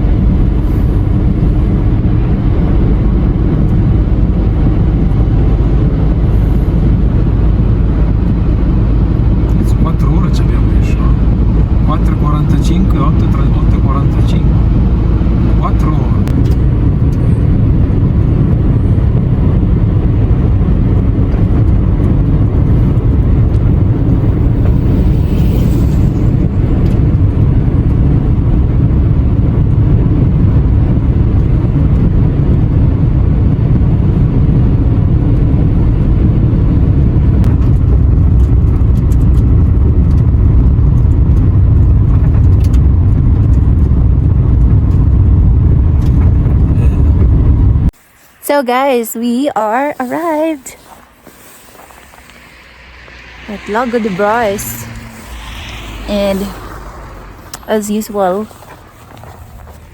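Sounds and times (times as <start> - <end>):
car engine and tyre noise: 0.0 - 48.5, 49.5 - 59.9.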